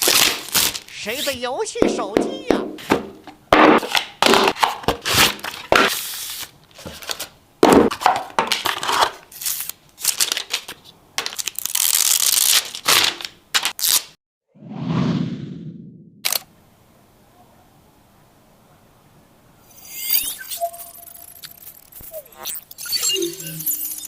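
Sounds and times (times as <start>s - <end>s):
packaging crinkling and tearing: 0.0s - 1.4s, 8.0s - 14.2s.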